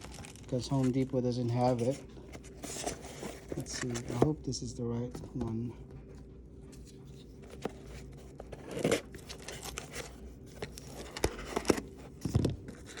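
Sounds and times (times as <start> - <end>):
plastic packaging crinkling and tearing: 0.0 - 1.9, 8.5 - 13.0.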